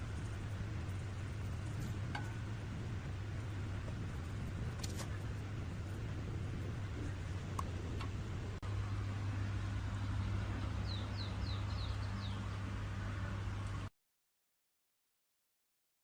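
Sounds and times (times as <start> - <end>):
low mechanical hum: 0.0 - 13.9
bird chirping: 8.9 - 12.7.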